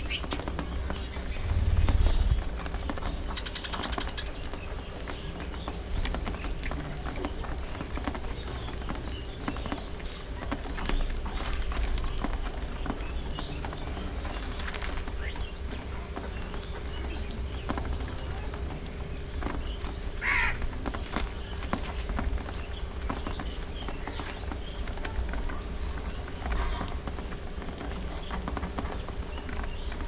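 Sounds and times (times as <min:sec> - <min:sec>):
rapid ticks: 0:00.1 - 0:05.7
steady low hum: 0:00.8 - 0:05.2
budgerigars chirping: 0:03.3 - 0:04.3.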